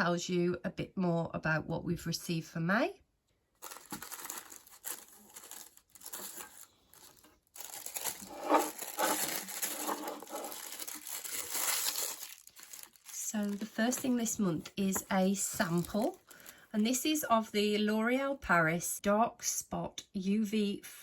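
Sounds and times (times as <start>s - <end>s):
paper packaging crinkling: 3.6s - 16.6s.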